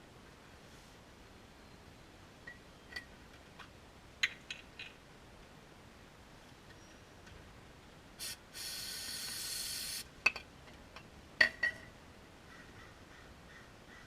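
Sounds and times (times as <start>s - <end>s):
aerosol spray hissing: 8.2s - 10.1s.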